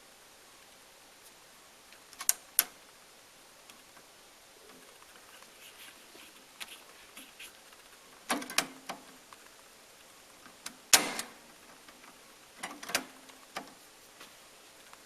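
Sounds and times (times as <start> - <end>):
cassette deck mechanical clicks: 10.6 - 11.4, 12.6 - 13.8.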